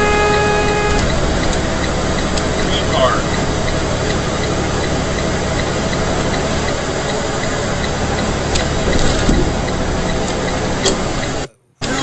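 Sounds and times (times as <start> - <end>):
truck road and engine noise: 0.0 - 12.0.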